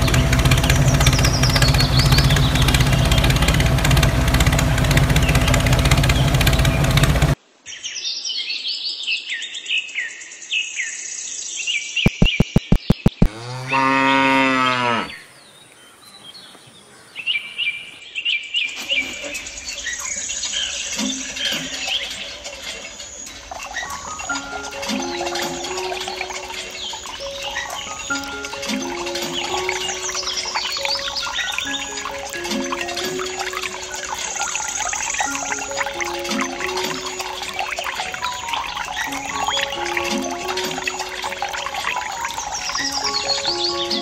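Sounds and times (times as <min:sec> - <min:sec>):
tractor engine running: 0:00.0 - 0:07.4
birds chirping: 0:00.0 - 0:08.0, 0:12.0 - 0:44.0
quick clicks: 0:12.1 - 0:13.3
cow mooing: 0:13.3 - 0:15.2.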